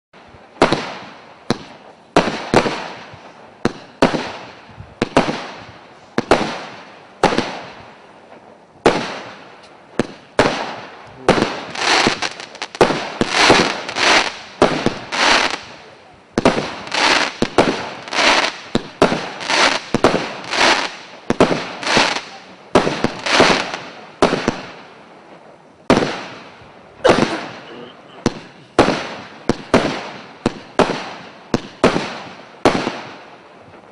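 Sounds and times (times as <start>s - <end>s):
fireworks battery firing: 0.6s - 24.9s.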